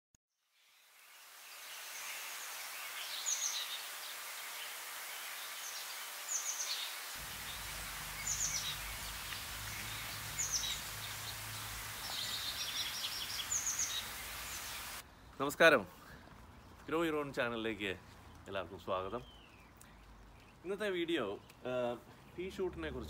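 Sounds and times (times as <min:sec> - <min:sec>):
steady outdoor hiss: 0:00.5 - 0:23.0
songbird calling: 0:01.6 - 0:15.0.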